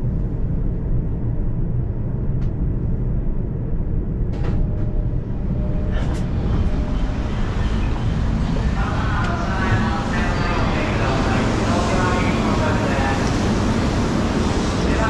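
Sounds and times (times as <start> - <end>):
train rumble from inside: 0.0 - 15.0.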